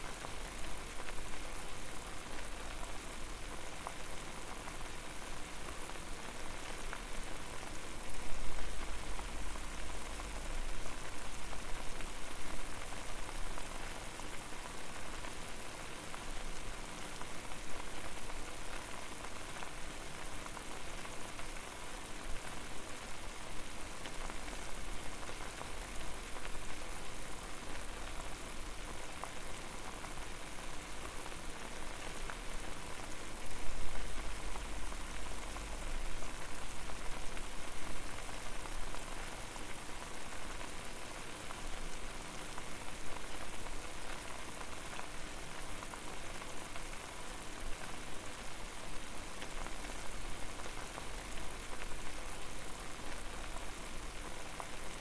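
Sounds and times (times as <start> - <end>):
water boiling and bubbling: 0.0 - 55.0.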